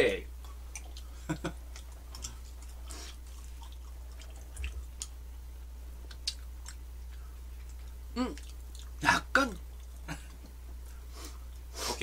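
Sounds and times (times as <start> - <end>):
low electrical hum: 0.0 - 12.0
wet chewing clicks: 0.4 - 5.2, 6.0 - 9.0.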